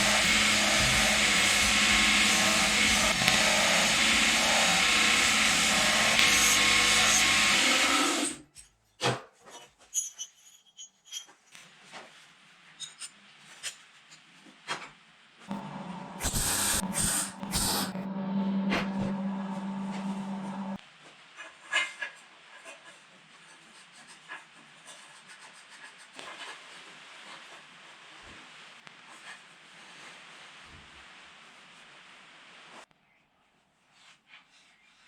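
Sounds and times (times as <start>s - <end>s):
irregular loud bursts: 0.0s - 8.2s
steady hum: 0.0s - 8.2s, 15.5s - 20.8s
power tool running: 0.0s - 8.4s, 15.5s - 20.8s.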